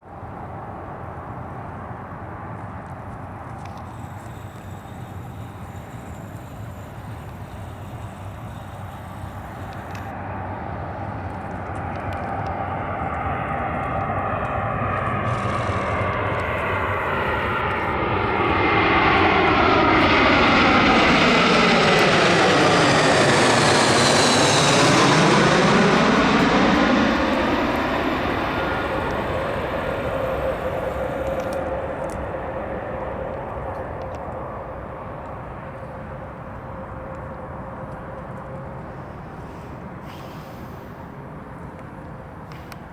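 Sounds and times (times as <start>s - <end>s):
jet airliner flying past: 0.1s - 42.9s.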